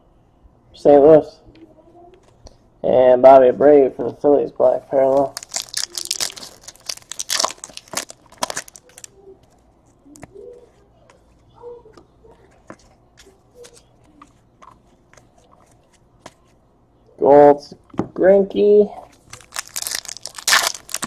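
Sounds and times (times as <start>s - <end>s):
card pack wrapper crinkling: 5.2s - 9.2s, 19.2s - 21.0s.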